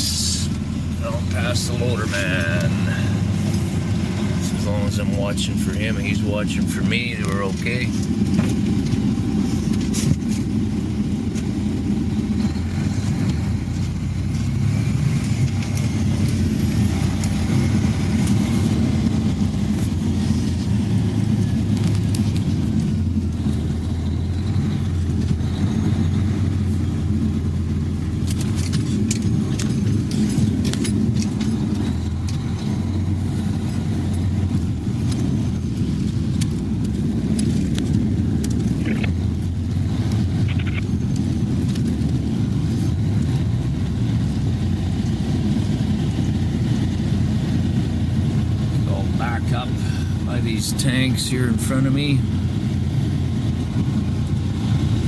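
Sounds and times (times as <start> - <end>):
truck engine droning: 0.0 - 55.0
light clicks and rattles: 28.1 - 44.3.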